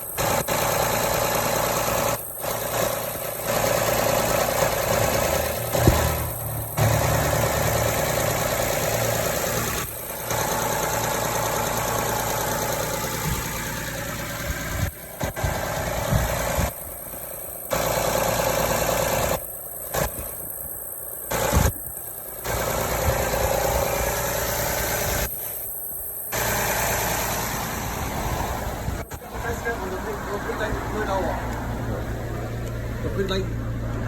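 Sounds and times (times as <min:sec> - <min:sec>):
car engine idling with hiss: 0:00.0 - 0:34.0.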